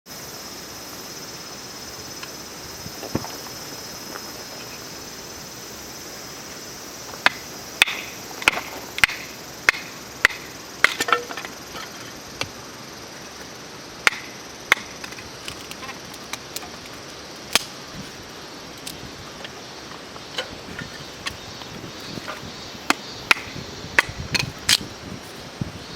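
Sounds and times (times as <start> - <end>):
firewood being split: 7.8 - 12.6, 14.1 - 19.1, 20.3 - 25.2.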